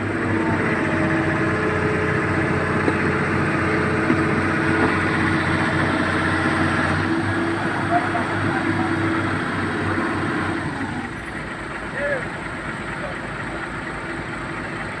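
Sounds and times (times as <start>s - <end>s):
heavy diesel engine running: 0.0s - 15.0s
small knocks: 2.7s - 5.8s.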